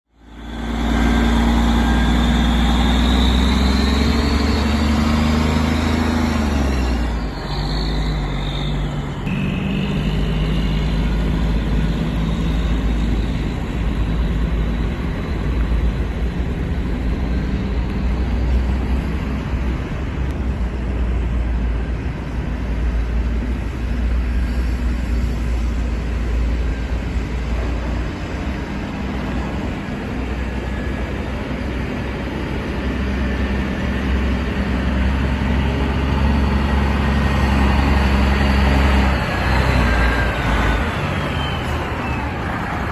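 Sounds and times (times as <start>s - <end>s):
diesel truck engine humming: 0.1s - 42.9s.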